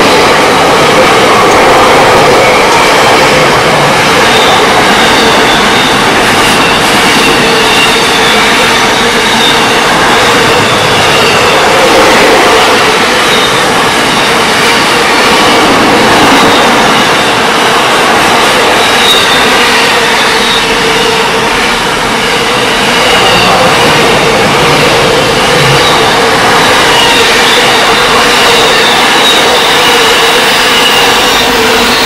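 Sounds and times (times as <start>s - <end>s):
steel wheels clattering on rail: 0.0s - 32.0s
faint high wheel squeals: 2.5s - 17.8s, 18.4s - 32.0s.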